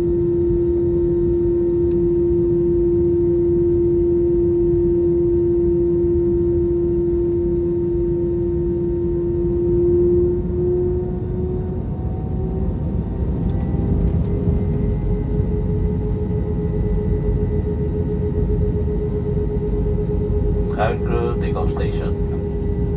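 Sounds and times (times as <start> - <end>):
jet engine whine: 0.0 - 22.9
low cabin rumble: 13.5 - 22.9.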